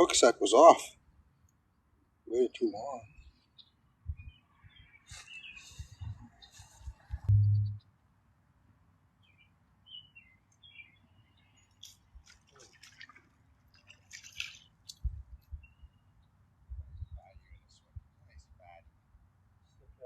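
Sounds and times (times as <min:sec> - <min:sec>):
small birds chirping: 0:01.4 - 0:07.9, 0:09.2 - 0:18.8
loud low thump: 0:07.3 - 0:07.8.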